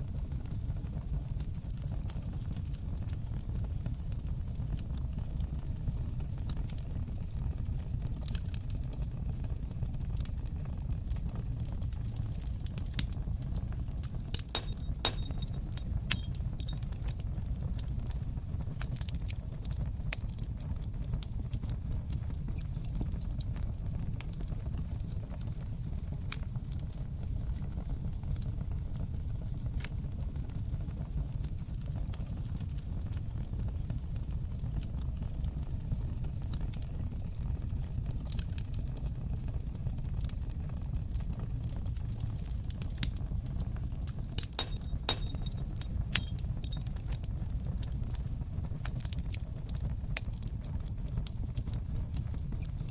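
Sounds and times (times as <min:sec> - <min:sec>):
fire crackles and pops: 0:00.0 - 0:52.9
fire rumbling in fireplace: 0:00.0 - 0:52.9.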